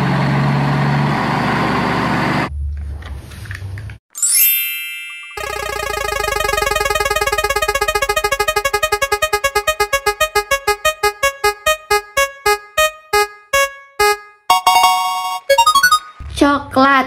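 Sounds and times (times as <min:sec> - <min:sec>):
electronic piano-like plinks: 0:04.2 - 0:16.2.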